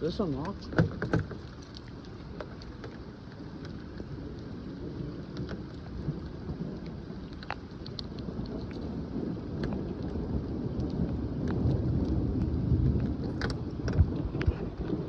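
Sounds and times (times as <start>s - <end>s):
heavy rain pouring: 0.0s - 15.0s
low thunder rumble: 0.0s - 15.0s
raindrops ticking close by: 0.0s - 15.0s.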